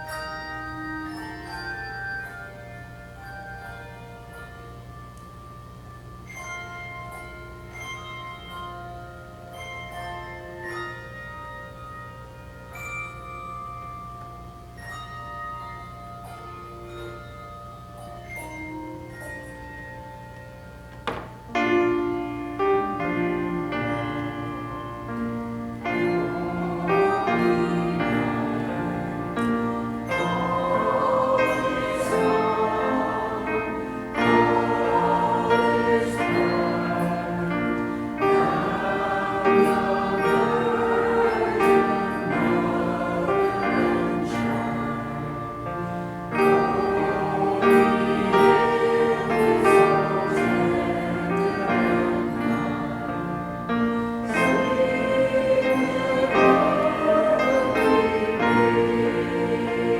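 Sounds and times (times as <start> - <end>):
choir singing: 21.8 - 59.9.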